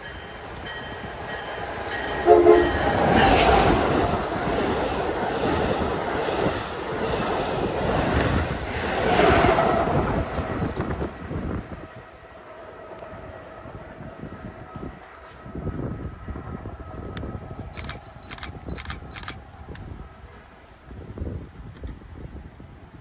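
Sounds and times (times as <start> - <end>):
train passing at speed: 0.0 - 18.7
train horn blast: 1.9 - 4.2.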